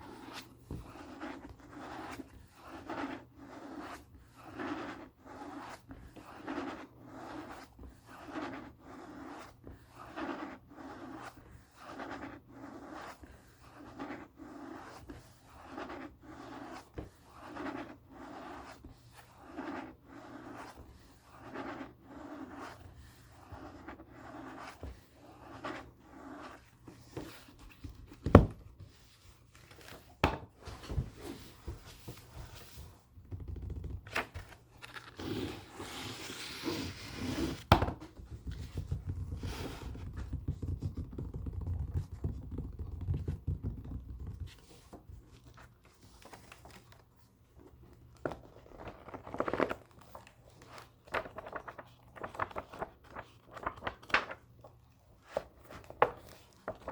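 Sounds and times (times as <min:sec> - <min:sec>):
book pages riffling: 0:34.0 - 0:35.5, 0:48.1 - 0:56.9.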